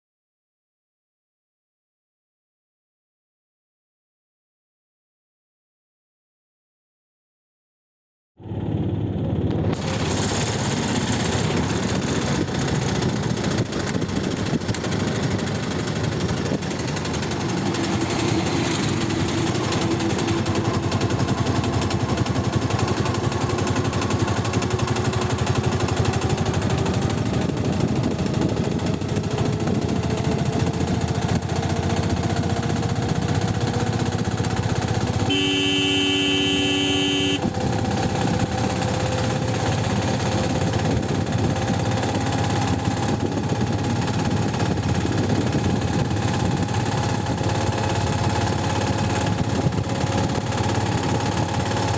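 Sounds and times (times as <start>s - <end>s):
vehicle engine running: 8.4s - 51.9s
vehicle horn: 35.2s - 37.5s.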